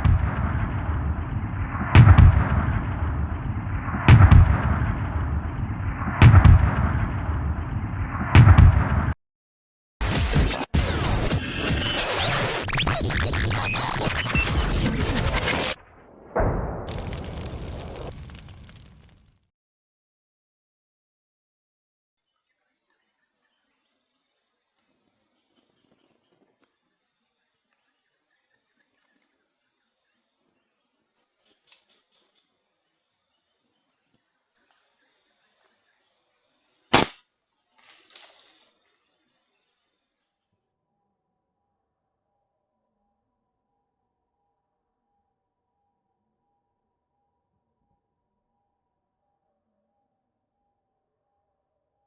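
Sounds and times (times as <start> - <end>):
heavy gunshot-like blasts: 0.0 - 9.2, 16.3 - 18.4
insect steady thin tone: 22.2 - 40.4.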